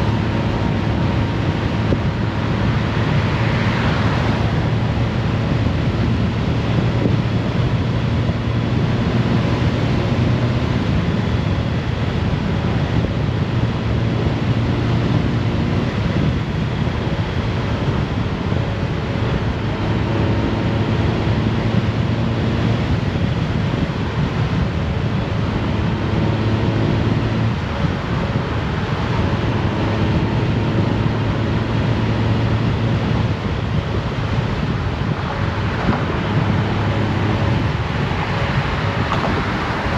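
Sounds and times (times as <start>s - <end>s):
motorcycle engine running: 0.0s - 3.6s
road noise: 0.0s - 39.9s
wind rushing over microphone: 0.0s - 39.9s.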